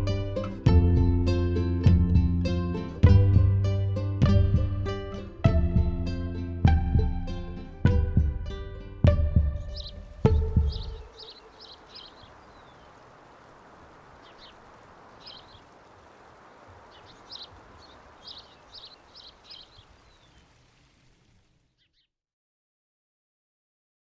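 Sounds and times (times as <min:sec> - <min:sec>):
plucked-string chord ringing: 0:00.0 - 0:11.0
faint outdoor hiss: 0:00.0 - 0:22.1
small bird chirping: 0:09.5 - 0:22.1.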